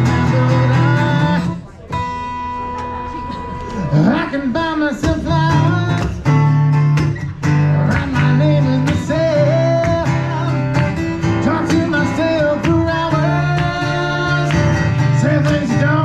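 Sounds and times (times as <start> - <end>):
bass notes: 0.0 - 1.6
person singing: 0.0 - 1.7, 3.7 - 6.4, 7.6 - 16.0
strummed acoustic guitar: 0.0 - 16.0.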